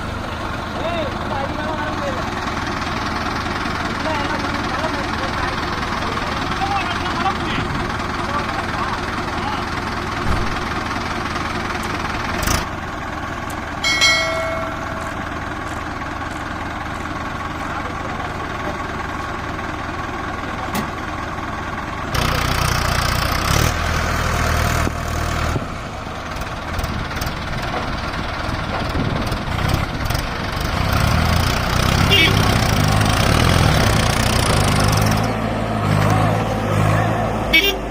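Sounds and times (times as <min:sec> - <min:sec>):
diesel tractor engine running: 0:00.0 - 0:37.9
brief ringing tone: 0:13.8 - 0:15.4.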